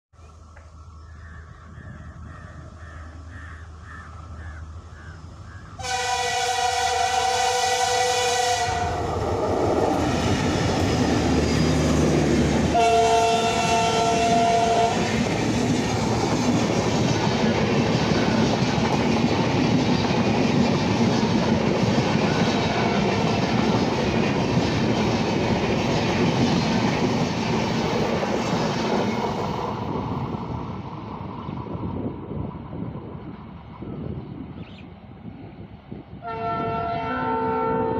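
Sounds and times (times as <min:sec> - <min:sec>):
diesel locomotive engine rumble: 0:00.2 - 0:37.9
locomotive horn blasts: 0:05.8 - 0:09.1, 0:12.7 - 0:15.1, 0:22.6 - 0:23.1, 0:36.2 - 0:37.9
clatter of wheels on rail: 0:09.6 - 0:32.8.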